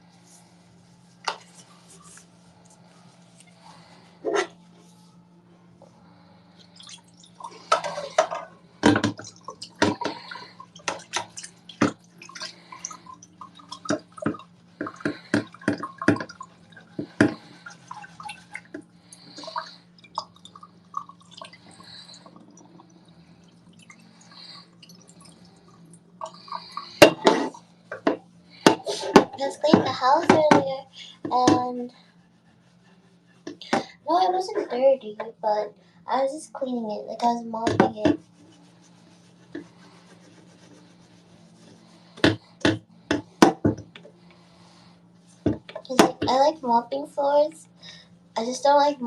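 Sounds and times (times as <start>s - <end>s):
steady low hum: 0.0s - 49.0s
water running and dripping: 6.7s - 27.3s
dishes clinking in a sink: 7.6s - 12.5s.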